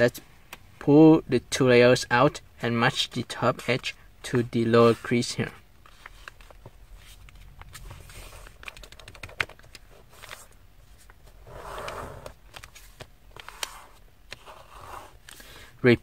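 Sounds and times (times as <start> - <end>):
paper folding clicks and crackles: 5.8 - 11.2, 11.8 - 14.5.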